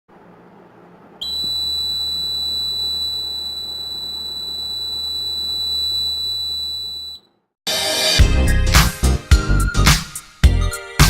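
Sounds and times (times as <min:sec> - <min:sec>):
high-pitched buzzer tone: 0:01.2 - 0:07.3.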